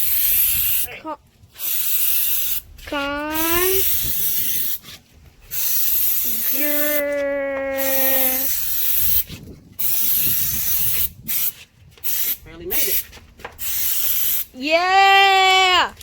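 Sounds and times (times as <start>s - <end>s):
aerosol spray can hissing: 0.0s - 0.9s, 1.6s - 2.7s, 3.4s - 4.8s, 5.5s - 13.0s, 13.6s - 14.6s.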